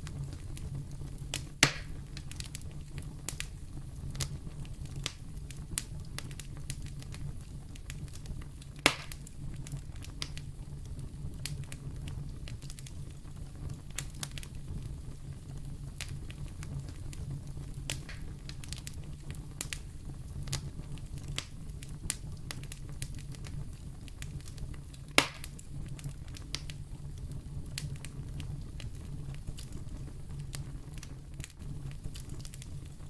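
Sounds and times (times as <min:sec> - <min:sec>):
wood fire crackling: 0:00.0 - 0:33.0
loud sharp fire pops: 0:01.3 - 0:10.4, 0:16.0 - 0:33.0.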